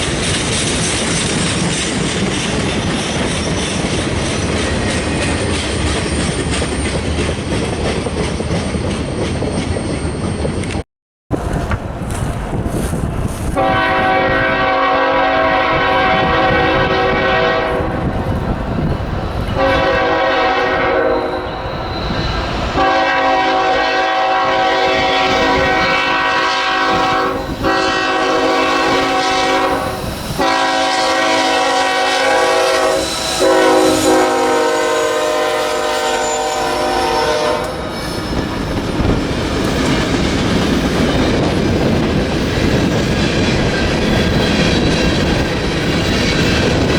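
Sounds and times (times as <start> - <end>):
train rumble and clickety-clack: 0.0 - 46.9
locomotive air horn blasts: 13.6 - 18.1, 19.6 - 21.5, 22.8 - 37.9.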